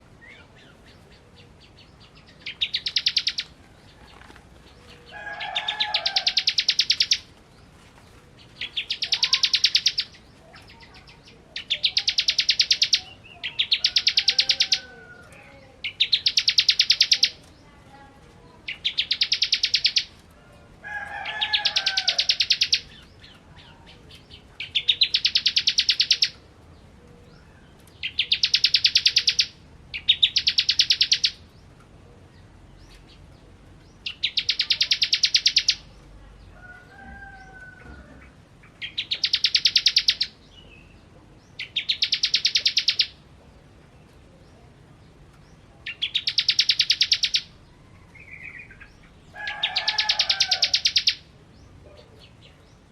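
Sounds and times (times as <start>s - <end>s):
bird singing buzzy trill: 0.0s - 4.0s, 4.6s - 7.3s, 8.4s - 17.7s, 18.6s - 20.2s, 21.2s - 26.4s, 27.2s - 31.8s, 32.7s - 36.0s, 38.6s - 43.2s, 45.5s - 52.9s
faint lower bird call: 8.6s - 17.4s.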